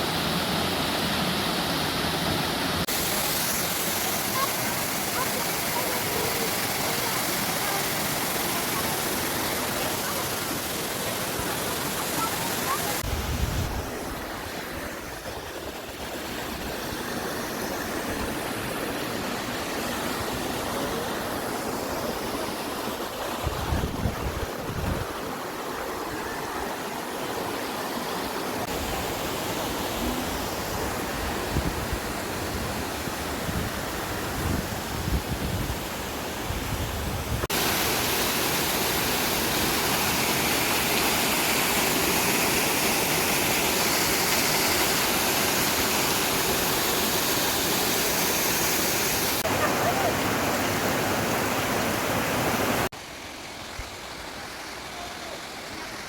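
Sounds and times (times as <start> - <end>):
waterfall rushing: 0.0 - 35.0, 35.7 - 56.0
wind rumbling on microphone: 13.0 - 14.2, 23.4 - 25.2.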